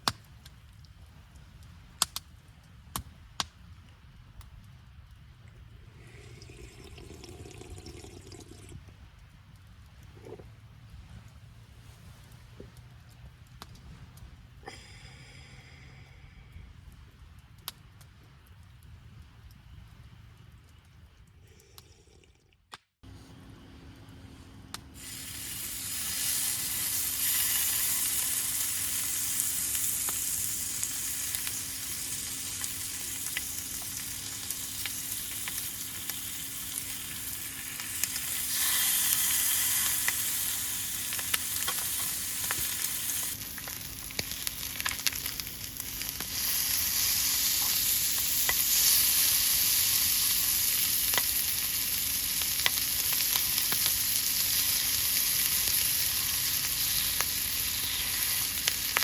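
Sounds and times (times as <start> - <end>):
crackling pops: 0.0 - 5.8, 12.2 - 14.5, 16.8 - 21.8, 24.7 - 59.0
faint steady hum: 0.0 - 59.0
food sizzling in a pan: 25.0 - 59.0.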